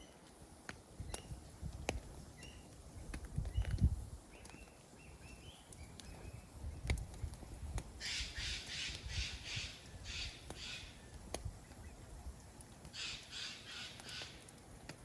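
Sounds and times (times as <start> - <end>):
campfire crackles: 0.0 - 15.0
crow cawing: 13.0 - 14.4.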